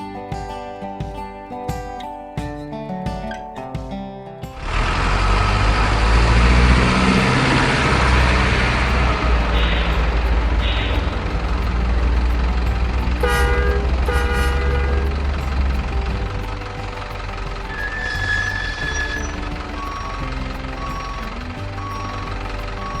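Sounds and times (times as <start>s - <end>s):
truck engine running: 4.6s - 23.0s
short horn toots: 13.2s - 15.0s.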